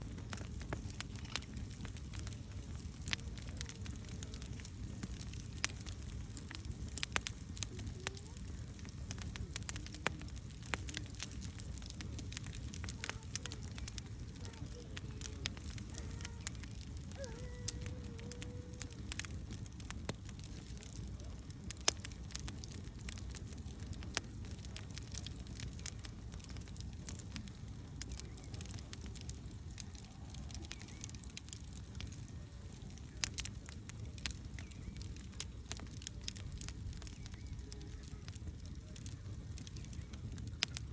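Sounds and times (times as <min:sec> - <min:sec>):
campfire crackling and popping: 0:00.0 - 0:40.9
low rumble of flames: 0:00.0 - 0:40.9.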